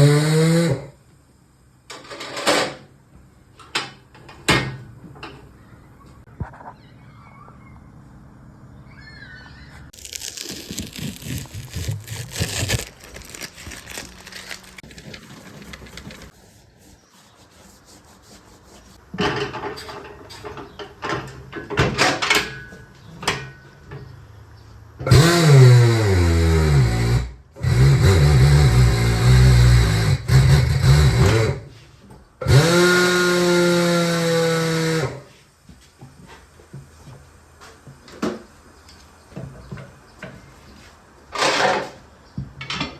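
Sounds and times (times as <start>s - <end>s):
tools clattering and scraping: 1.9s - 2.9s, 19.1s - 24.2s, 39.4s - 42.9s.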